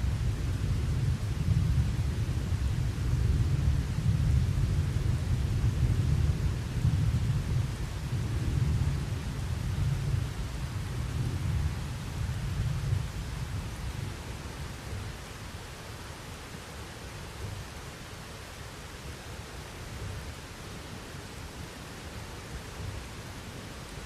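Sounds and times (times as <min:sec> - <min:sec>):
thunder rumbling: 0:00.0 - 0:15.1
steady rain: 0:00.0 - 0:24.0.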